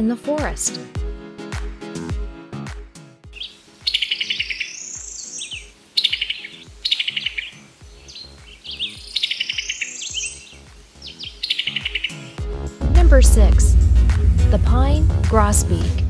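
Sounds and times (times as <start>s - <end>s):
bird chattering calls: 3.4s - 12.4s.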